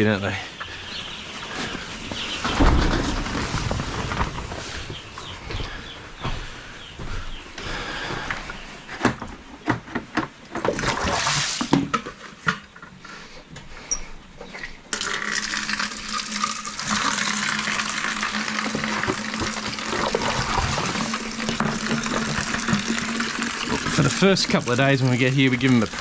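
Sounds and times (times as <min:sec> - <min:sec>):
knocks and clatters: 0:01.7 - 0:05.7
water running into a container: 0:14.9 - 0:26.0.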